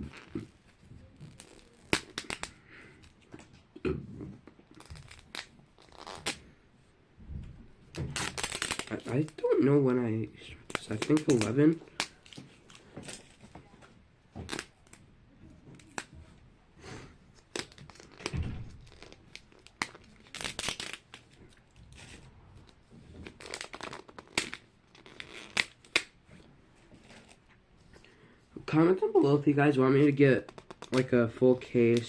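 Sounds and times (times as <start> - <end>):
plastic packaging crinkling: 7.9 - 9.5, 10.5 - 13.5, 17.4 - 22.2, 23.2 - 26.2.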